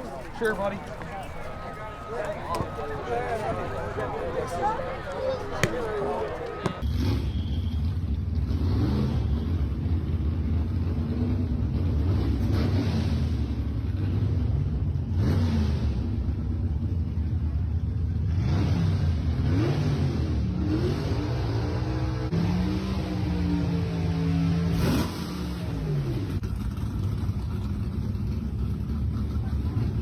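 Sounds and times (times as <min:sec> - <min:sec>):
loud car engine revving: 0:08.2 - 0:16.6, 0:18.2 - 0:26.9.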